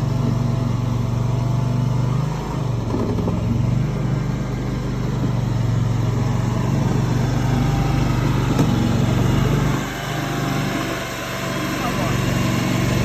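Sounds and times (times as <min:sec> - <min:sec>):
skid steer engine running: 0:00.0 - 0:13.0.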